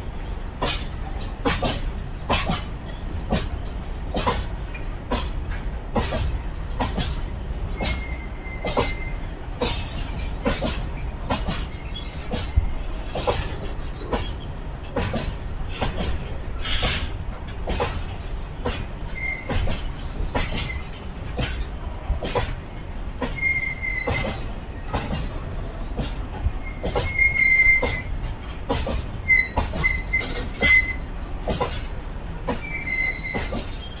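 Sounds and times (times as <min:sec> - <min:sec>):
freight train rumble: 0:00.0 - 0:34.0
wheels clacking over rail joints: 0:00.0 - 0:34.0
high-pitched wheel squeals: 0:07.8 - 0:09.3, 0:19.1 - 0:19.6, 0:23.2 - 0:24.4, 0:26.6 - 0:28.2, 0:29.2 - 0:31.1, 0:32.5 - 0:34.0.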